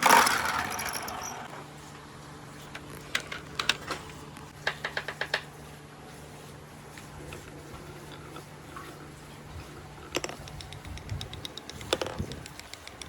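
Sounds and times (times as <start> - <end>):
marbles rolling and clicking: 0.0 - 1.5
sharp marble clack: 0.0 - 1.5
steady low hum: 0.0 - 13.0.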